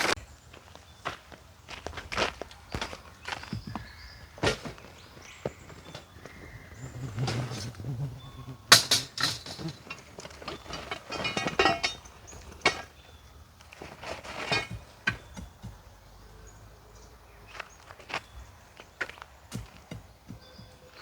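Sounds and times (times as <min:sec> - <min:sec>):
knocks clicks and scrapes: 0:08.7 - 0:13.0, 0:13.7 - 0:15.8.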